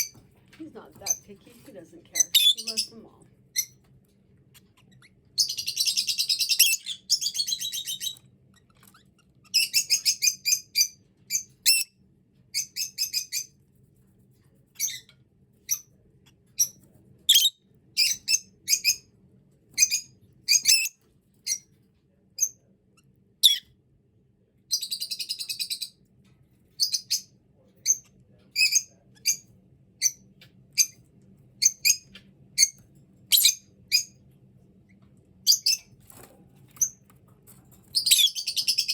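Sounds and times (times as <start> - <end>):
lovebirds chirping: 0.0 - 3.8, 4.5 - 11.9, 19.8 - 21.7, 23.4 - 23.6, 24.7 - 26.0, 26.8 - 29.4, 31.6 - 34.2, 35.4 - 35.9, 37.9 - 38.9.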